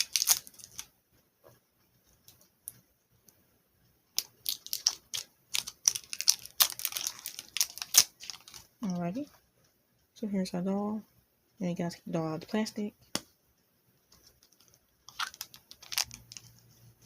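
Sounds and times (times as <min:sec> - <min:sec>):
plastic packaging crinkling: 0:00.0 - 0:00.9, 0:04.2 - 0:09.2, 0:14.1 - 0:17.0.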